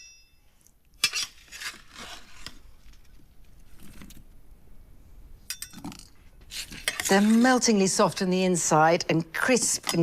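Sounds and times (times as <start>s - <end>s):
utensil scraping roast potatoes: 6.4s - 8.3s.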